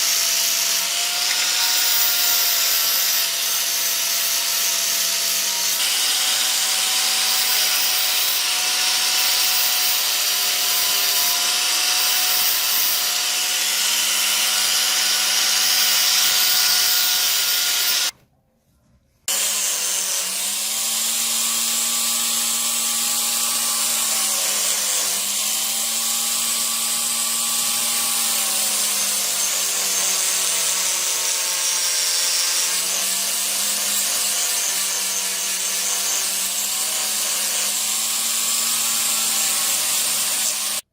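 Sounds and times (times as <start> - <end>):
power tool grinding metal: 0.0 - 18.1, 19.3 - 40.9.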